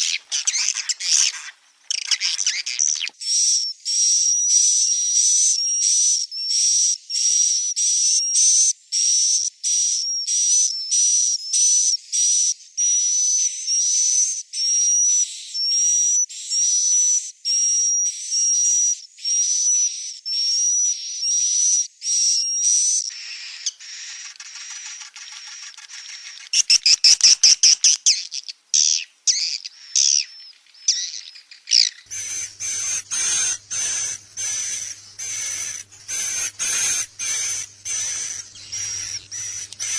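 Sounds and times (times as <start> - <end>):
swiftlet chicks chirping: 0.0 - 3.2, 23.1 - 39.9
fast clicks: 23.2 - 28.0, 32.1 - 39.9
faint low hum: 32.0 - 39.9.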